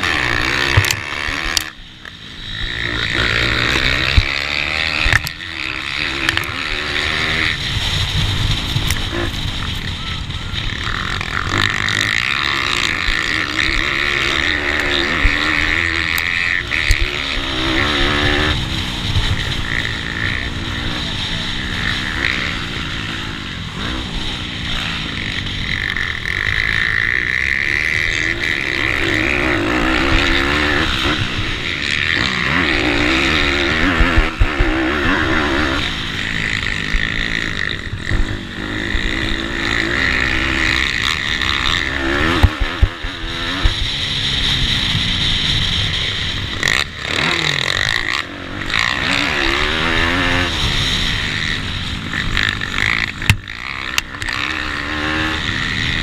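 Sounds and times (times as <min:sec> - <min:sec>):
small motorbike engines revving: 0:00.0 - 0:56.0
thumps: 0:53.2 - 0:54.2.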